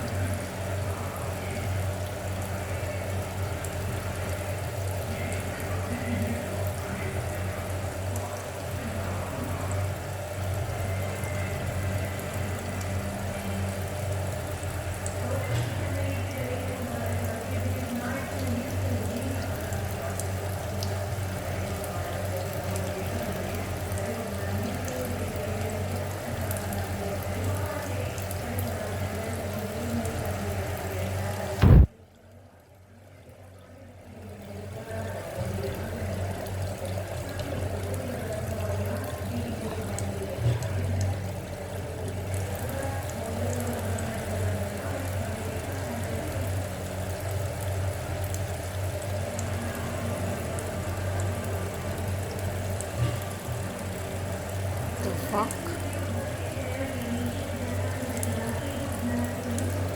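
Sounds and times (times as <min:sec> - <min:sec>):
tap water running into sink: 0:00.0 - 0:32.4, 0:34.0 - 0:59.9
loud thump: 0:31.6 - 0:31.9
low hum: 0:31.6 - 0:32.0.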